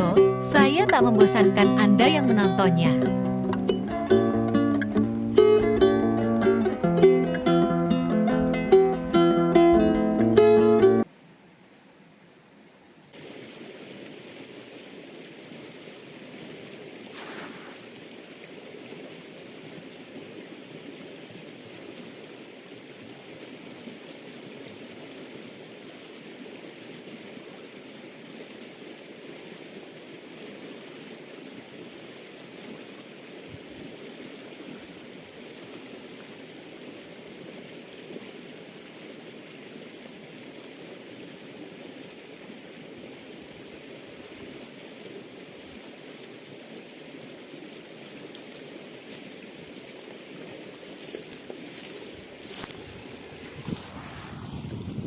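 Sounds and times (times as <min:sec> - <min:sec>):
water rushing: 0:00.0 - 0:11.1, 0:13.1 - 0:55.0.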